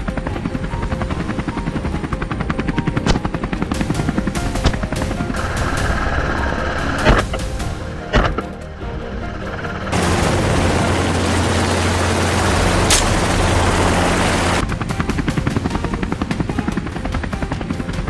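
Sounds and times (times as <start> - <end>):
helicopter running: 0.0 - 18.0
rotor blade chop: 3.0 - 8.7, 9.5 - 16.8.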